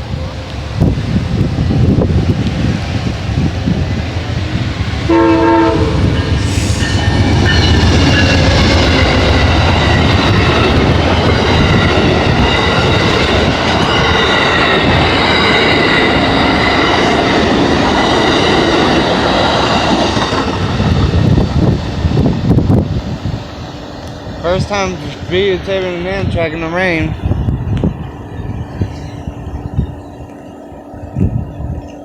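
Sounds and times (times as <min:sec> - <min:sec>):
locomotive rumble: 0:00.0 - 0:32.0
train cars rolling over rails: 0:00.0 - 0:32.0
train horn blast: 0:05.0 - 0:08.9.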